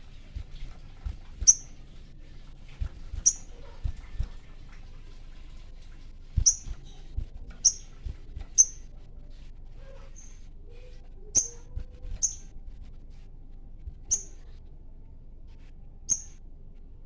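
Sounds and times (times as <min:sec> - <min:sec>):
soft low thumps: 0:00.0 - 0:01.8, 0:02.7 - 0:04.6, 0:06.2 - 0:08.9, 0:13.6 - 0:14.5
songbird sharp chirps: 0:01.4 - 0:01.8, 0:03.1 - 0:04.0, 0:06.4 - 0:08.9, 0:11.3 - 0:12.5, 0:14.1 - 0:14.5, 0:16.1 - 0:16.4.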